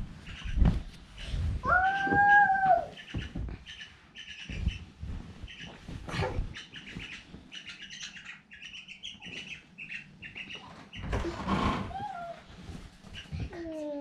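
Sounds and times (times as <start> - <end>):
myna chirping: 0.2 - 11.1.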